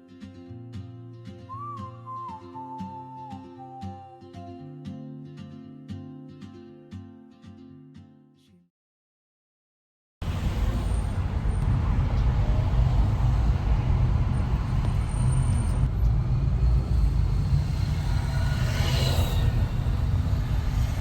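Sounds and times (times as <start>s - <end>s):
low rumble of road traffic: 10.2s - 21.0s.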